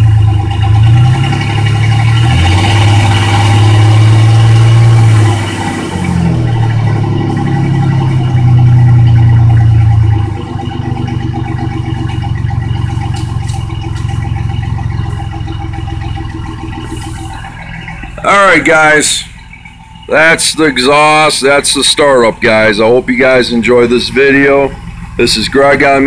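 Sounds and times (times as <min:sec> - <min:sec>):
engine exhaust revving and idling: 0:00.0 - 0:26.0.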